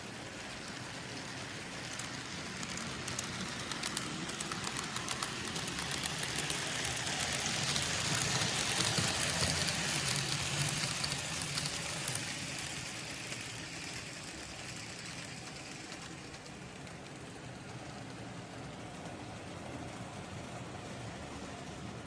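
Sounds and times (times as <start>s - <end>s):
wheels clicking over rail: 0.0s - 17.2s
model train whirring: 0.0s - 22.0s.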